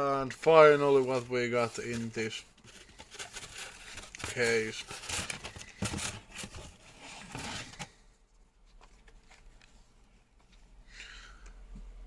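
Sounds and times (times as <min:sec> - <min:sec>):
packaging rustling and scraping: 0:00.3 - 0:08.1.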